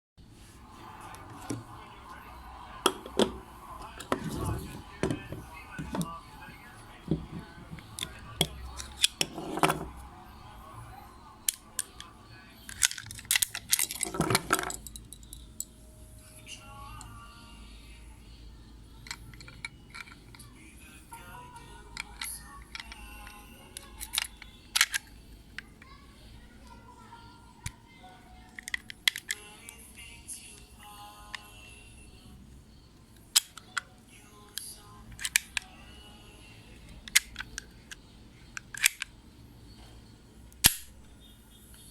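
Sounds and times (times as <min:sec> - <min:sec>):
pistol metallic clicks and clatter: 0:37.1 - 0:38.0, 0:38.6 - 0:39.1.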